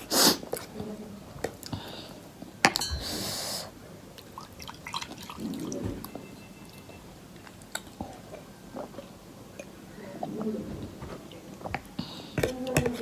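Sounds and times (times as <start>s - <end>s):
soft chewing: 0.0s - 2.5s, 4.2s - 13.0s.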